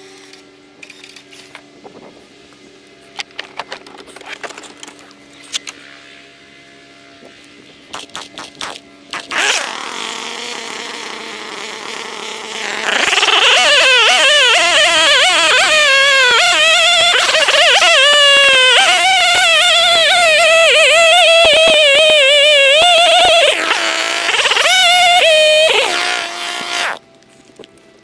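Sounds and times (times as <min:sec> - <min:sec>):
small petrol engine running: 0:09.2 - 0:27.0.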